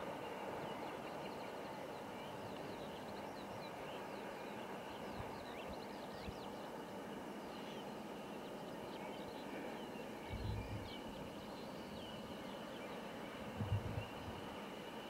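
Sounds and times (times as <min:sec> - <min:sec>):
low rumble: 0:10.3 - 0:10.9, 0:13.6 - 0:14.3.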